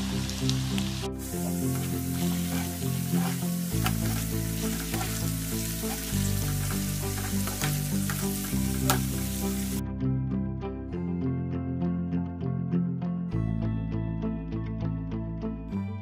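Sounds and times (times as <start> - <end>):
potatoes sizzling in oil: 0.0 - 9.8
soft background music: 0.0 - 16.0.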